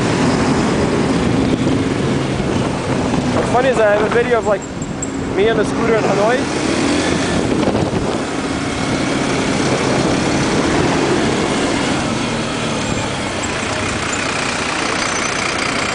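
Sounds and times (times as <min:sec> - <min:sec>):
motorcycle engine running: 0:00.0 - 0:15.9
wind and road noise: 0:00.0 - 0:15.9.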